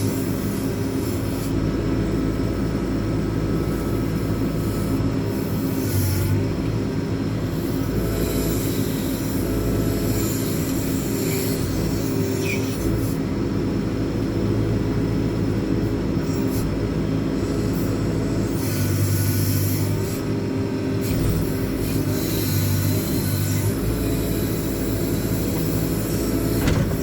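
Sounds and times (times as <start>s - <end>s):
diesel engine running: 20.0s - 27.0s
hydraulic hiss: 24.9s - 27.0s.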